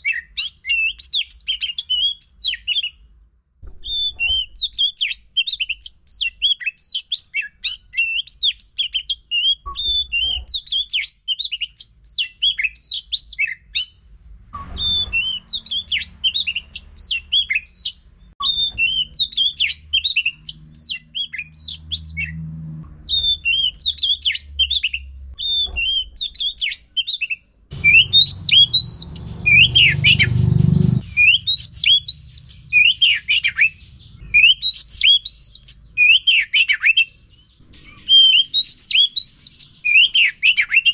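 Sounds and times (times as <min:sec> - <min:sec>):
bird singing chirps and whistles: 0:00.0 - 0:40.9
low rumble: 0:14.1 - 0:16.0, 0:27.7 - 0:34.7.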